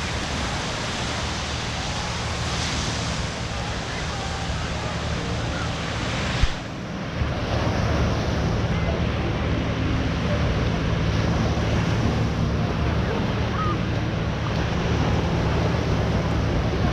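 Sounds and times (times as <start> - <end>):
ocean surf washing on beach: 0.0 - 16.9.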